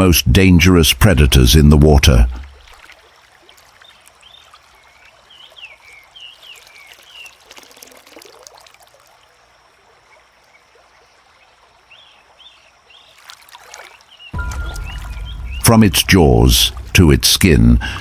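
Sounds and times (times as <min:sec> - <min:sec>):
faint trickling water: 0:02.0 - 0:18.0
bird chirps: 0:13.8 - 0:18.0.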